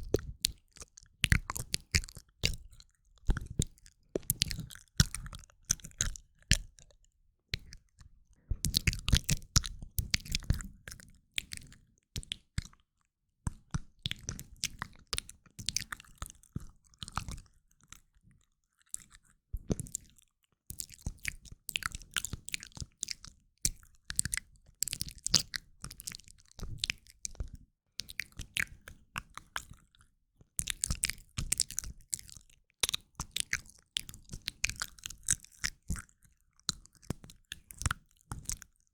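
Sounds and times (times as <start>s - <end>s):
wet tongue and lip clicks: 0.0s - 7.0s, 8.7s - 12.8s, 28.0s - 30.0s, 30.6s - 38.9s.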